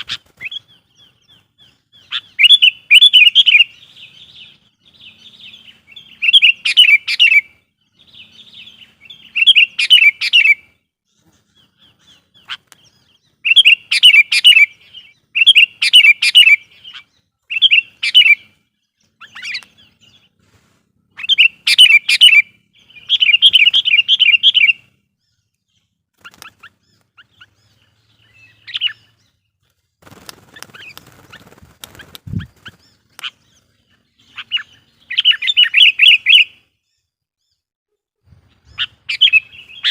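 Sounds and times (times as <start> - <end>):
bird chattering song: 0.0 - 20.4, 21.0 - 37.7, 38.3 - 39.9
rustle: 19.2 - 24.0.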